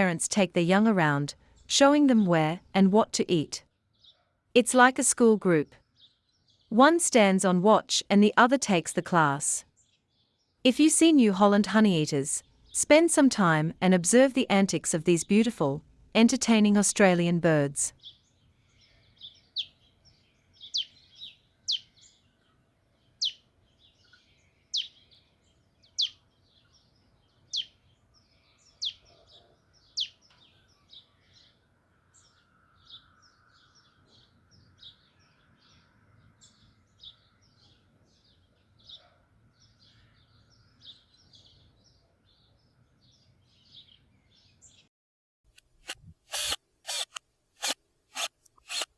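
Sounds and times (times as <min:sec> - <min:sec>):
birds calling with downward sweeps: 0:18.0 - 0:22.3, 0:23.2 - 0:29.2
soft high bird chirps: 0:18.0 - 0:22.5, 0:23.1 - 0:31.6.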